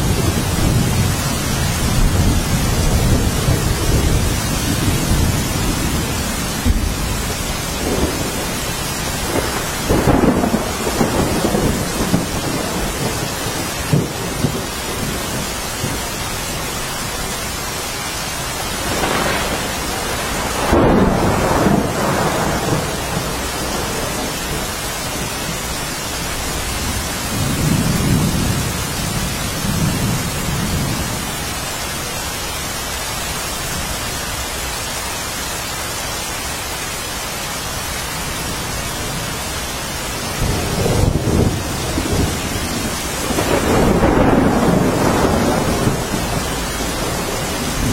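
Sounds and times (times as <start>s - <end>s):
low rolls of thunder: 0.0s - 16.7s, 18.7s - 31.3s, 40.1s - 47.9s
steady rain falling: 0.0s - 47.9s.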